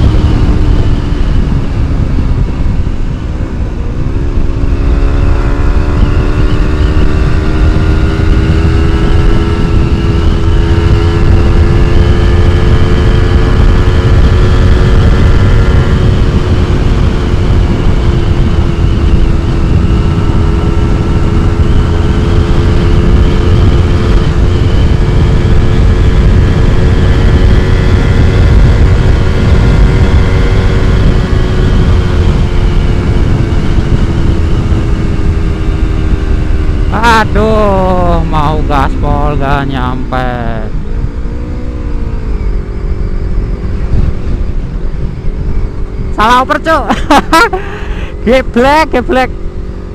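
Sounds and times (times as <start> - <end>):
wind rumble on microphone: 0.0 - 49.9.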